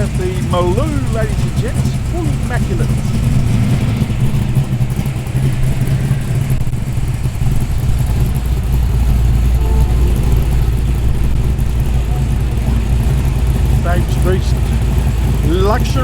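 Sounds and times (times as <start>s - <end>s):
car engine rumbling at low revs: 0.0s - 16.0s.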